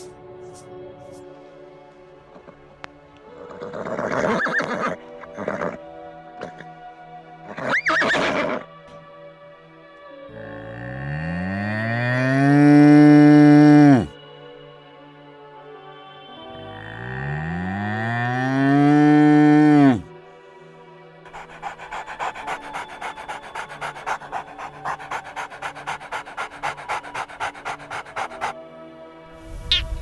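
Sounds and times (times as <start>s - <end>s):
soft background music: 0.0s - 30.0s
quick rhythmic panting breaths: 21.2s - 30.0s.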